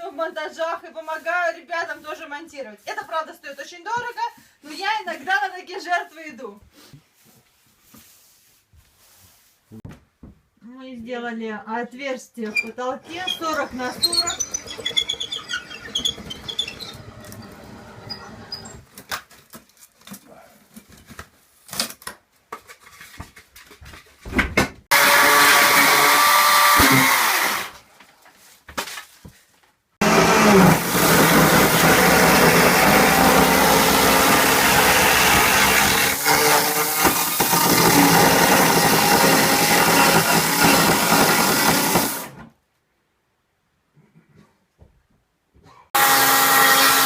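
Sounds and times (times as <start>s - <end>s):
electric power tool motor whining: 24.9s - 27.7s, 30.0s - 42.3s.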